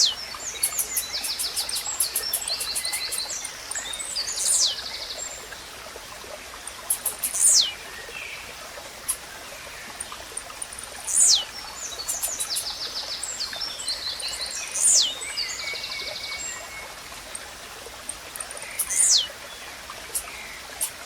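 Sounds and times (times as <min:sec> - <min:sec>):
running water hiss: 0:00.0 - 0:21.0
bird high trill: 0:11.1 - 0:11.5, 0:18.8 - 0:19.3.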